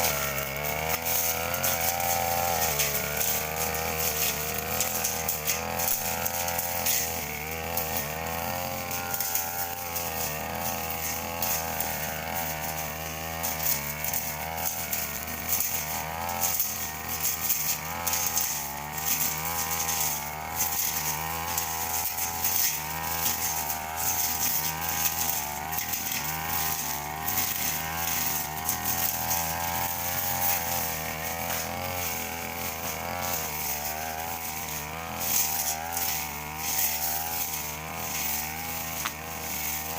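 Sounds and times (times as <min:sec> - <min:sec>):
brush cutter engine cutting grass: 0:00.0 - 0:39.9.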